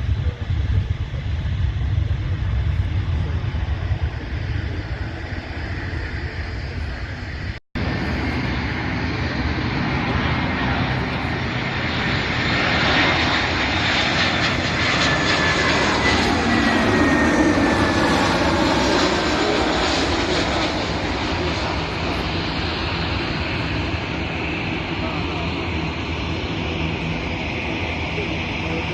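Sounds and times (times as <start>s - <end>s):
jet airliner engines passing: 0.0s - 28.9s.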